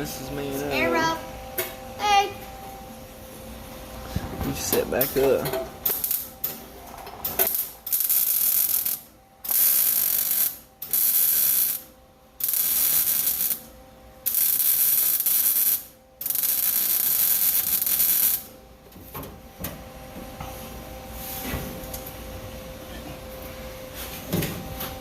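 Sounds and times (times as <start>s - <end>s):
welding arc bursts: 5.9s - 6.3s, 7.4s - 18.5s.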